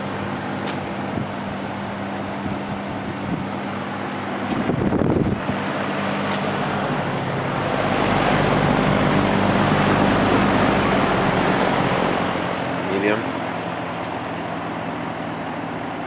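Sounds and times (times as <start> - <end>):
box fan running: 0.0 - 16.0.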